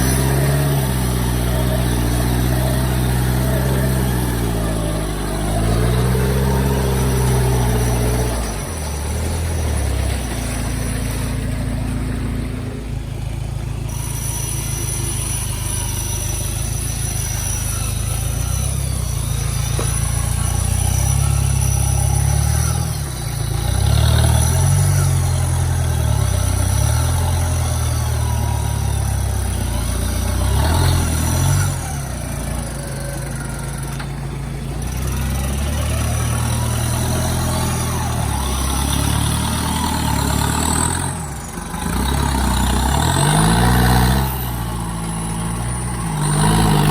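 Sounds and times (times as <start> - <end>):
high-pitched whine: 0.0 - 46.9
vehicle engine revving: 0.0 - 46.9.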